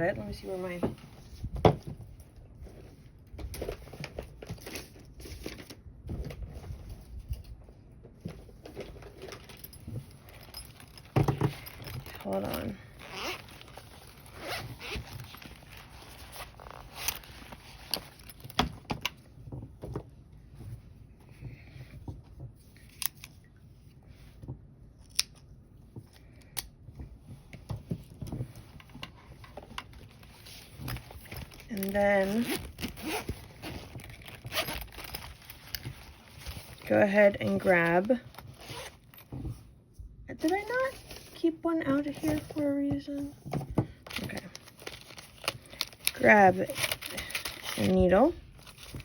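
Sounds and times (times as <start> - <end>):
objects rustling and crinkling: 0.0 - 49.0
soft handling noise: 0.0 - 49.0.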